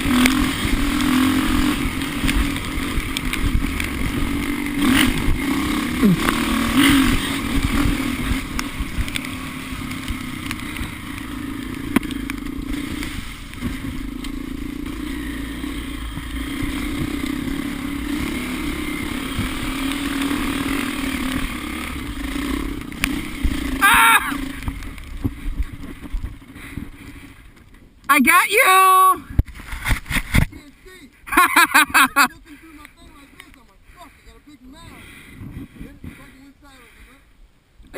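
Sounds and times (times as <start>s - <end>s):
off-road vehicle engine running: 0.0s - 27.8s.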